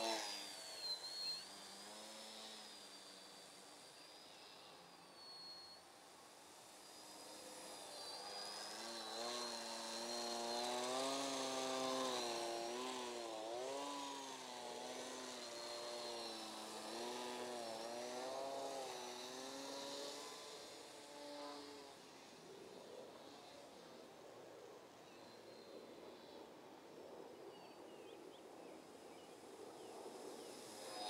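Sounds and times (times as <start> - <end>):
model plane motor buzzing: 0.0 - 31.0.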